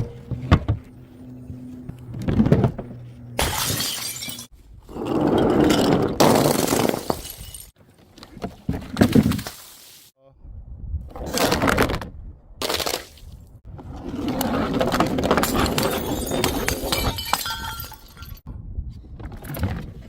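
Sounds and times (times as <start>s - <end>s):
glass bottles smashing: 3.4s - 4.5s, 6.3s - 7.7s, 15.4s - 18.4s.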